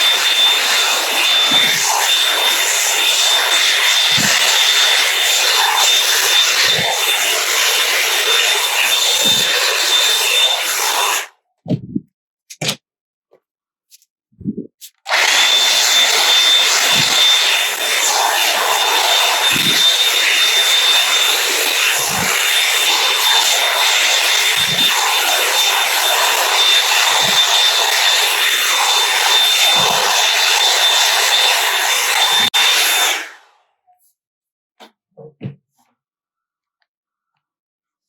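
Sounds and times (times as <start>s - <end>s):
hair dryer running: 0.0s - 11.3s, 15.1s - 33.4s
soft low thump: 11.7s - 12.1s.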